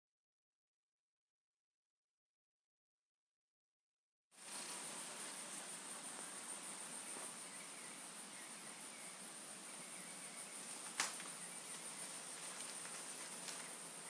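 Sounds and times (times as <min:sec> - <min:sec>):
insects trilling: 0:04.4 - 0:14.0.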